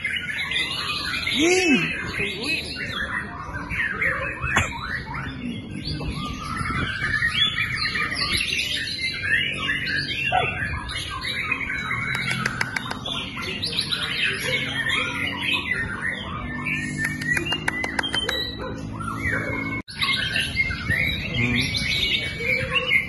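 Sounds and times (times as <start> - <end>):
songbird whistling and chirping: 0.0 - 23.0
sharp bird clicks: 12.0 - 13.2, 17.0 - 18.5.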